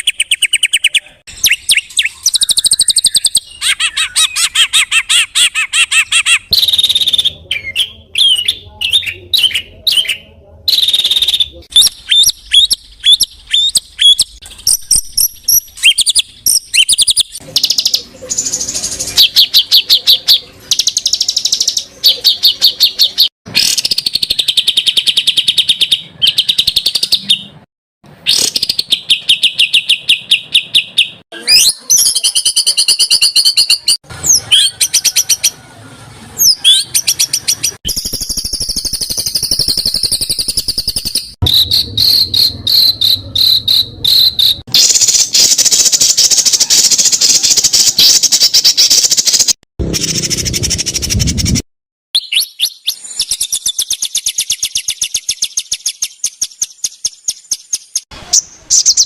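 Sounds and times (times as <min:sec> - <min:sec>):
songbird trills and whistles: 0:00.0 - 0:27.5, 0:28.3 - 0:35.6, 0:52.2 - 0:59.0.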